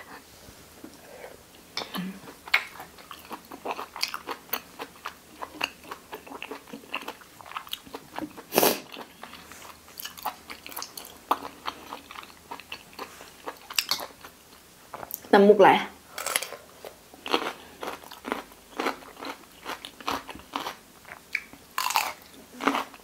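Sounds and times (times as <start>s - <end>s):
wet chewing and crunching: 2.2s - 14.3s, 17.2s - 23.0s.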